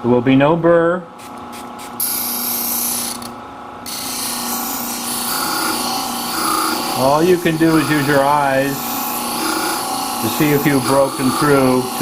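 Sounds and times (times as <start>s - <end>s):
motor humming: 2.0s - 12.0s
high grinding hiss: 3.9s - 12.0s.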